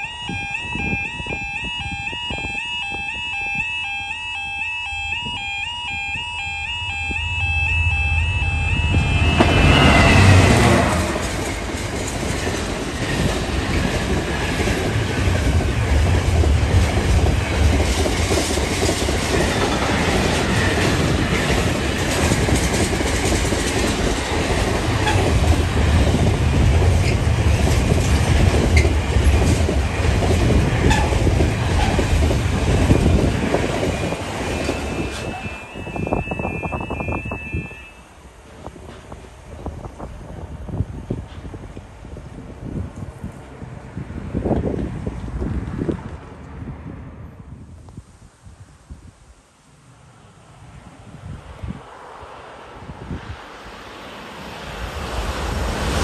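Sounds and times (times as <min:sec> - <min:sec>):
level crossing warning tone: 0:00.0 - 0:11.8, 0:32.7 - 0:38.3
train passing at speed: 0:00.0 - 0:56.0
falling tone: 0:00.5 - 0:11.8.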